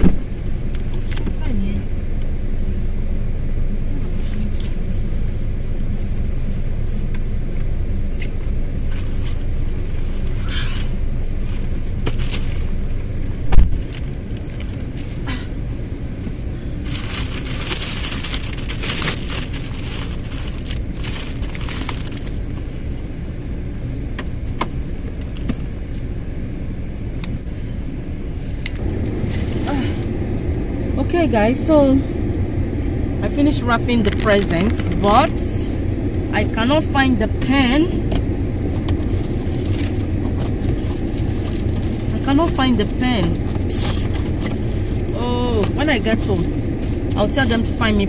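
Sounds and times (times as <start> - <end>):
loud thump: 0.0 - 0.3, 13.4 - 13.8
low rumble inside car: 0.0 - 48.0.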